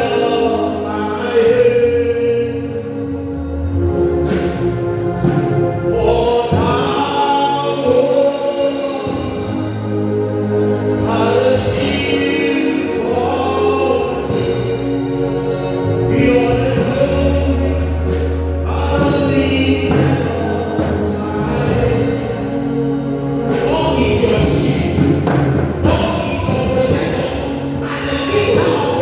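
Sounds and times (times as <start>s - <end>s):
choir singing gospel song: 0.0s - 29.0s
held bass notes: 0.0s - 29.0s.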